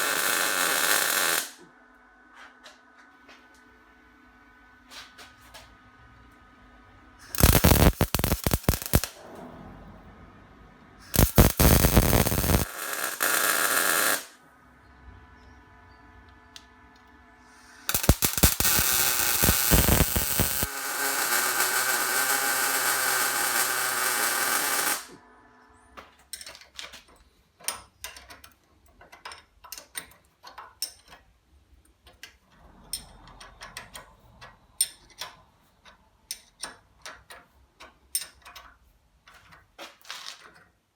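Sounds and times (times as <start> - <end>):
power tools working metal: 0.0 - 1.6, 7.3 - 9.2, 11.2 - 14.3, 17.9 - 25.2.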